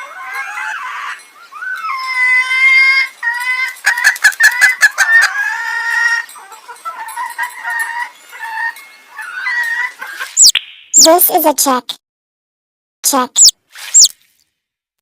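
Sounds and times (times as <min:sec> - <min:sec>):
chicken calls: 0:00.0 - 0:10.5, 0:13.4 - 0:14.1.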